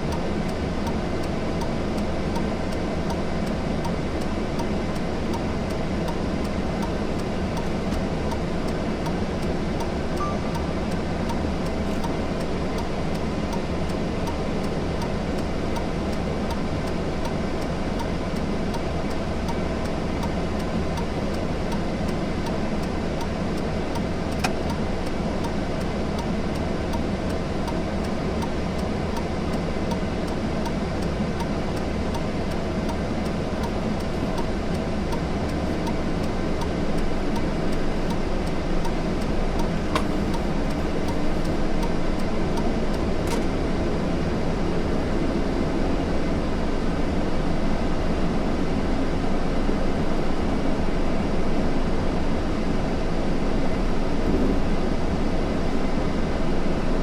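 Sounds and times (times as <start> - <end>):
vehicle road noise: 0.0 - 46.0
small click: 24.3 - 24.8, 38.8 - 42.0, 42.6 - 43.5.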